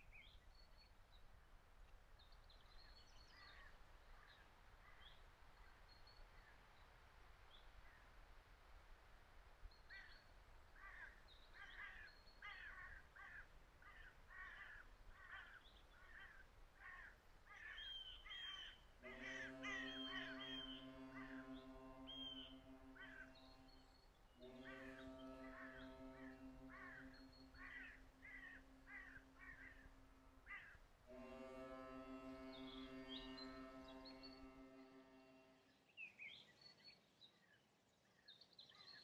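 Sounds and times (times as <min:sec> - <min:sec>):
faint bird calls: 0:09.8 - 0:35.3
sustained musical chord: 0:19.0 - 0:35.8.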